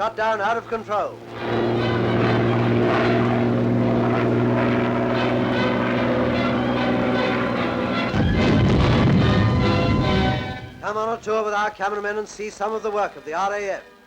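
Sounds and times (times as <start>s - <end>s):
propeller aircraft engine droning: 0.0s - 13.3s.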